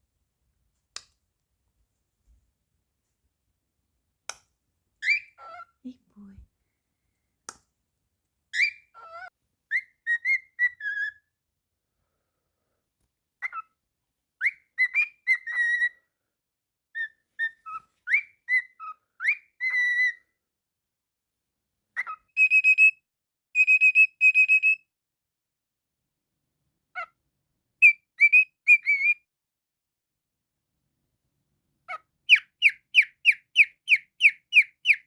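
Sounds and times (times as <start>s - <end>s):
cockatiel whistling a tune: 5.0s - 5.6s, 8.6s - 11.3s, 13.4s - 13.6s, 14.4s - 16.0s, 17.0s - 20.2s, 22.0s - 23.0s, 23.6s - 24.9s, 27.8s - 29.3s, 31.9s - 35.0s.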